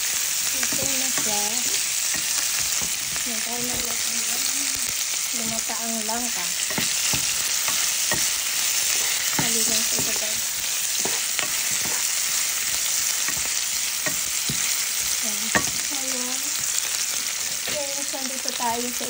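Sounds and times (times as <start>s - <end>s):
food sizzling in hot oil: 0.0s - 19.0s
spatula clacking against pan: 0.6s - 4.1s, 6.5s - 16.9s.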